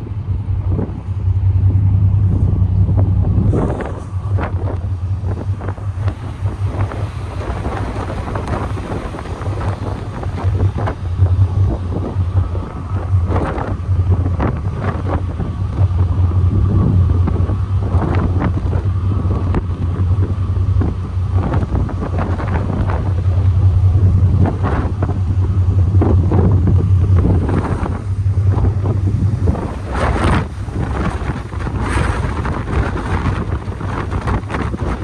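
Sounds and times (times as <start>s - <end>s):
ferry engines droning: 0.0s - 35.0s
wind buffeting microphone: 0.0s - 35.0s.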